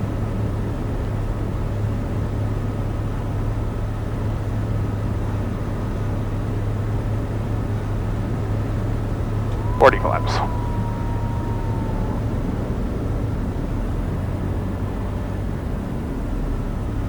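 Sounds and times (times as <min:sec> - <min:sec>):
propeller plane engine droning: 0:08.8 - 0:17.0.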